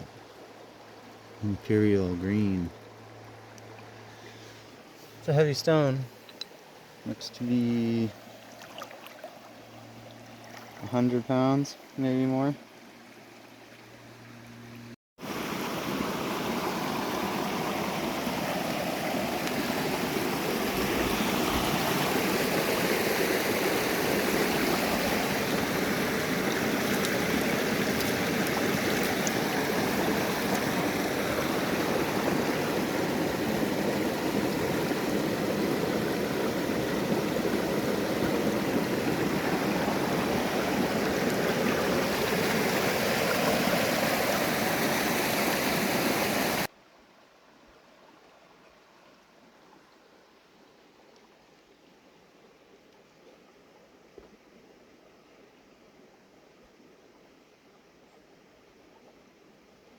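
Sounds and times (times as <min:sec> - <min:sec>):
river water rushing: 0:02.4 - 0:12.0, 0:15.2 - 0:46.7.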